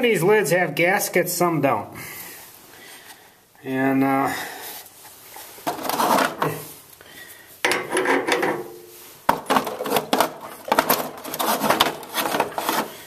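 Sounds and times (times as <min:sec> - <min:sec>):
metal tools scraping: 0:09.6 - 0:13.0.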